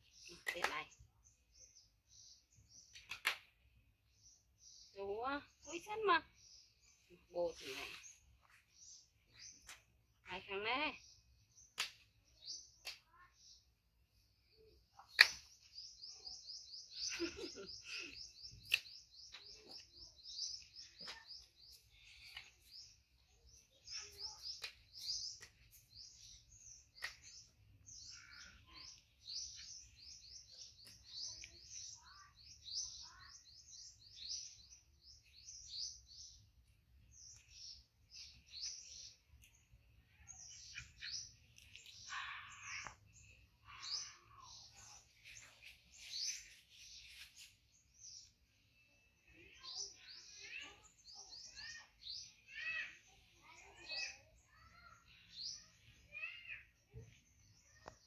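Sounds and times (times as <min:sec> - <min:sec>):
small birds chirping rapidly: 0:00.0 - 0:58.0.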